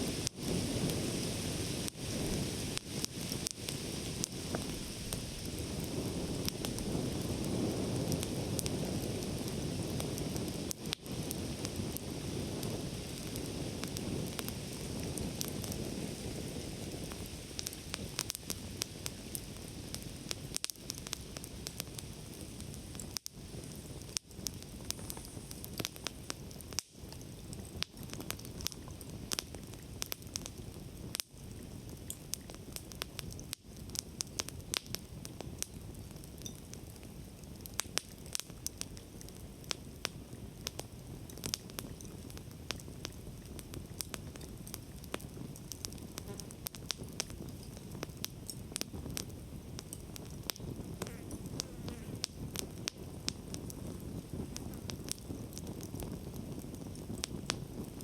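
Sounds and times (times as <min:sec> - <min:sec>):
campfire crackling and popping: 0:00.0 - 0:58.0
low rush of flame: 0:00.0 - 0:58.0.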